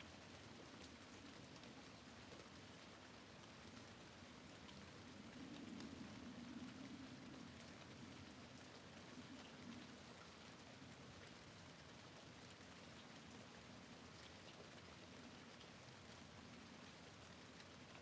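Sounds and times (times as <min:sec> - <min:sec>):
faint rain at a window: 0:00.0 - 0:18.0.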